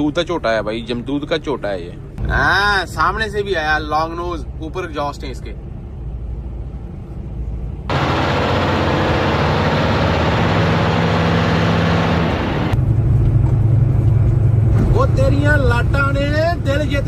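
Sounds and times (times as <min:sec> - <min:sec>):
road and wind rush: 0:01.9 - 0:17.0
truck diesel engine running: 0:07.8 - 0:17.0.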